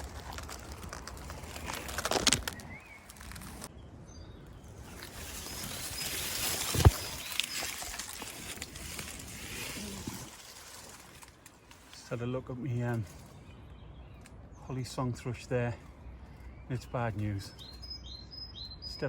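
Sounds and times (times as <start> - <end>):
twigs and leaves rustling: 0.0 - 3.7, 4.4 - 14.5
faint birdsong: 0.0 - 19.0.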